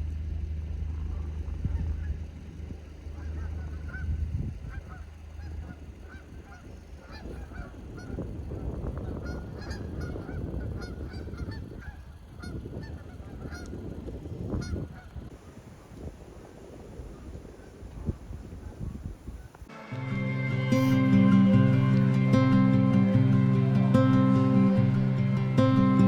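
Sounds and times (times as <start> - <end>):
geese honking: 3.0 - 13.8, 19.6 - 26.0.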